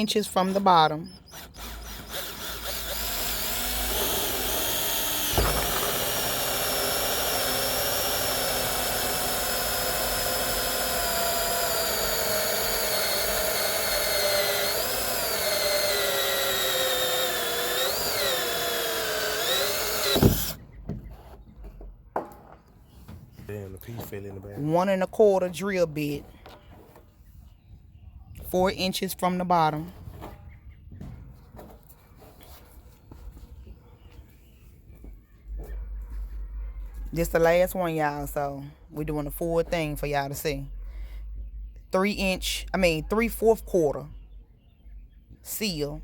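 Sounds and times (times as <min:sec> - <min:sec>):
power drill cutting plastic: 0:00.2 - 0:20.6.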